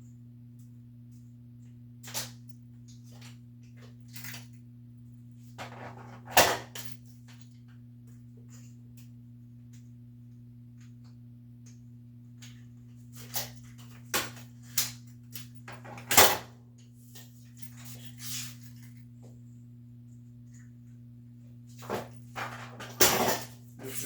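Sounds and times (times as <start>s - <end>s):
steady low hum: 0.0s - 24.0s
parts and tools clattering: 21.8s - 24.0s.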